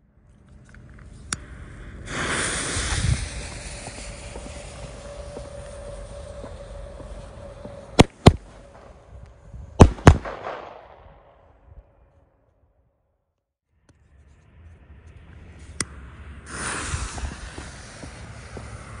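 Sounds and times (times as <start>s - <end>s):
firework crackle: 1.0s - 11.2s, 16.4s - 19.0s
firework shells banging: 2.1s - 9.2s.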